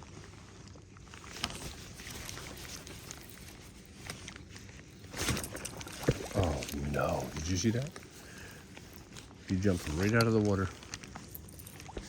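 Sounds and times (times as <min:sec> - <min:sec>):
water noise around boat: 0:01.4 - 0:12.0
fish splashing: 0:05.4 - 0:06.8.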